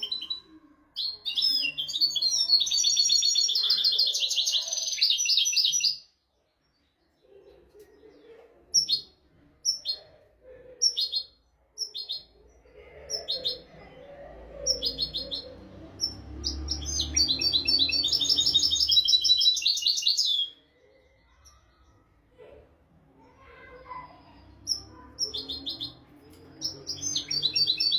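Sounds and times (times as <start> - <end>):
goldfinch chirps: 14.7 - 20.6.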